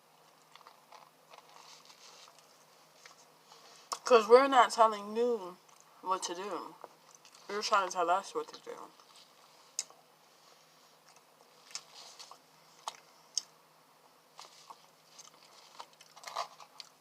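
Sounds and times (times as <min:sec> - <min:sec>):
quiet chewing of food: 0:00.2 - 0:04.1, 0:06.8 - 0:07.5, 0:09.0 - 0:17.0.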